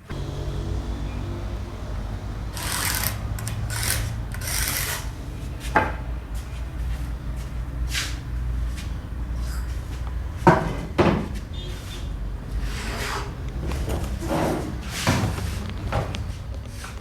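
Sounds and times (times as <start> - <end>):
wood lathe motor humming: 0.0 - 7.1
tool scraping spinning wood: 2.5 - 5.2.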